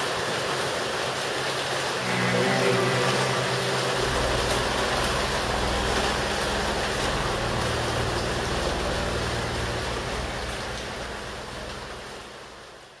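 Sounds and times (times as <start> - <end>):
heavy rain hissing: 0.0 - 13.0
low rumble: 2.0 - 12.2.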